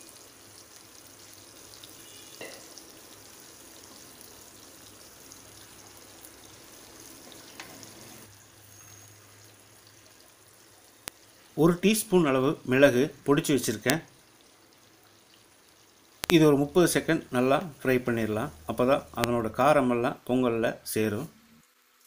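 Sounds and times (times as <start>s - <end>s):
food sizzling in oil: 0.0s - 20.0s.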